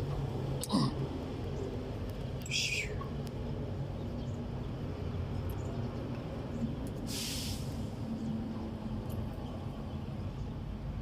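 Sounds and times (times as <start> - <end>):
short hiss: 7.1 - 7.9.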